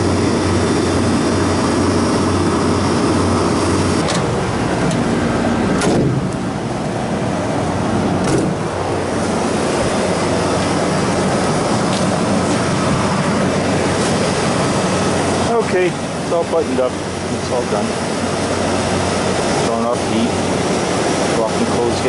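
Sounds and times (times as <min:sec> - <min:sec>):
refrigeration unit humming: 0:00.0 - 0:22.0
sharp knocks: 0:05.8 - 0:06.4, 0:08.2 - 0:08.6.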